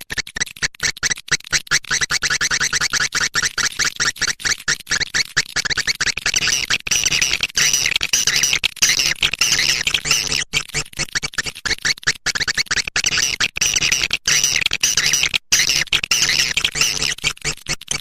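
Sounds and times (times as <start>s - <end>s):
swiftlets twittering chirps: 6.4s - 10.4s, 13.0s - 17.2s.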